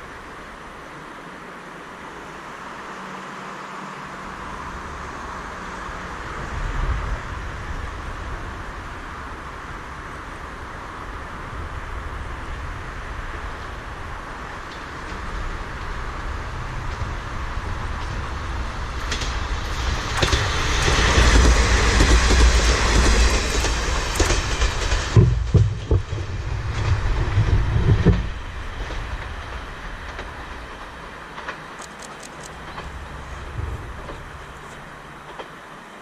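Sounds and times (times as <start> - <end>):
diesel railcar rumble: 0.0 - 36.0
rhythmic wheel clatter: 20.2 - 26.0.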